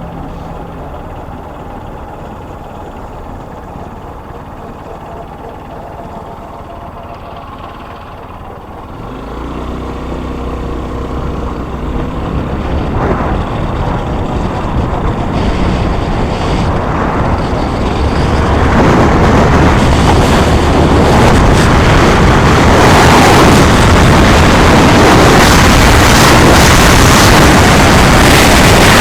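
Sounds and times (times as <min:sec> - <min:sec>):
vehicle noise: 0:00.0 - 0:29.0
wind rushing: 0:11.2 - 0:29.0.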